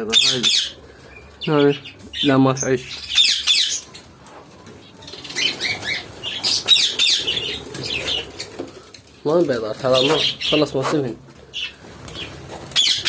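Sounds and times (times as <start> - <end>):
small birds chirping: 0.0 - 13.0
birds flapping wings: 4.6 - 10.4, 11.4 - 13.0.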